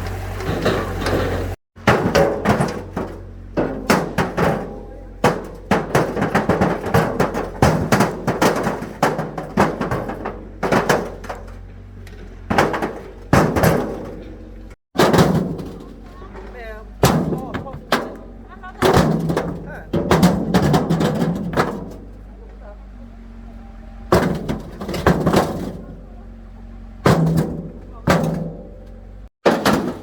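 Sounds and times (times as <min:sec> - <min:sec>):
stones clattering onto a load: 0:00.4 - 0:22.3, 0:24.1 - 0:26.1, 0:27.1 - 0:30.0.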